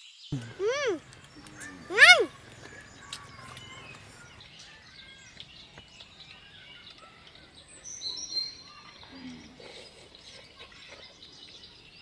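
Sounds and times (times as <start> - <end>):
high whistled bird call: 0.4 - 5.3
birds chirping: 0.4 - 12.0.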